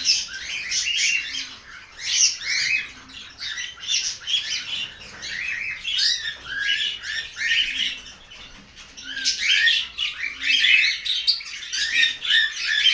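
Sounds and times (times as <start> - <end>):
flock of birds chirping: 0.0 - 12.9.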